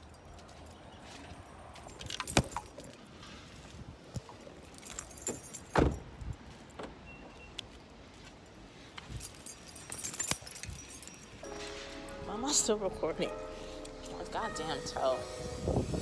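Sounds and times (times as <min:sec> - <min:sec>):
keys jangling: 0:01.7 - 0:06.7, 0:09.0 - 0:12.1.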